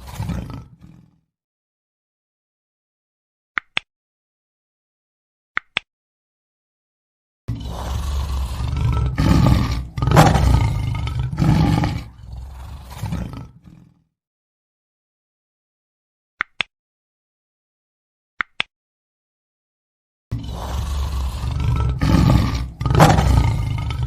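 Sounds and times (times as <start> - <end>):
lion roaring: 0.0 - 1.2, 7.5 - 14.0, 20.3 - 24.0.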